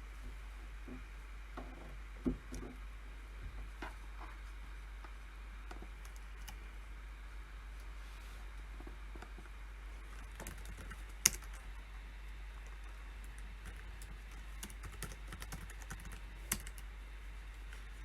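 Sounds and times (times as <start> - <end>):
steady low hum: 0.0 - 18.0
keyboard clicks: 10.2 - 11.6, 12.6 - 16.8.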